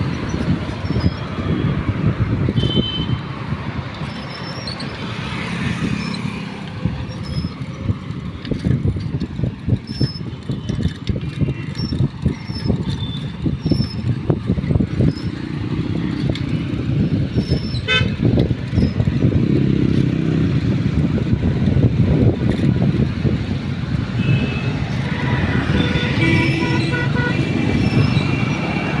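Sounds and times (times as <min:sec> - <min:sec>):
motorbike engines rumbling: 0:00.0 - 0:29.0
horns honking: 0:02.5 - 0:03.3, 0:17.8 - 0:18.3, 0:24.2 - 0:28.2.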